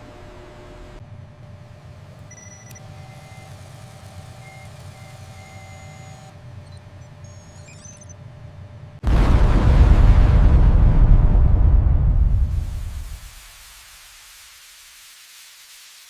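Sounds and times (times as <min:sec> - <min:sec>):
low machinery hum: 0:00.0 - 0:13.0
electronic warning beeps: 0:01.8 - 0:08.4.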